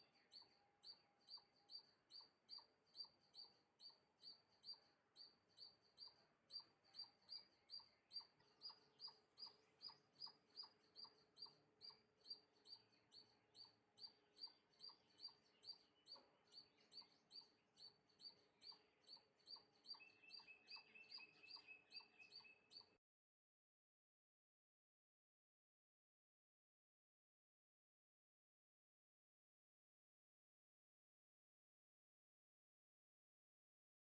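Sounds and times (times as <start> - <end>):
lower bird chirp: 0.0 - 23.0
small bird chirping high note: 0.0 - 23.0.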